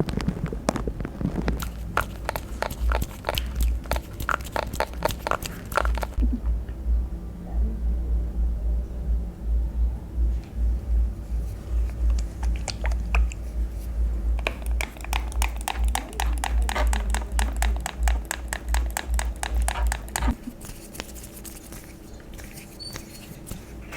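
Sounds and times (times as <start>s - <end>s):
sharp clicks and crackles: 0.0s - 6.3s, 11.7s - 23.8s
low handling rumble: 5.9s - 20.6s.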